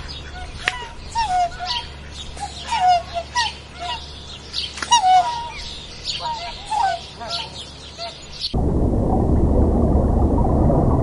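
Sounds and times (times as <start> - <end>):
waterfowl honking: 0.0 - 8.4.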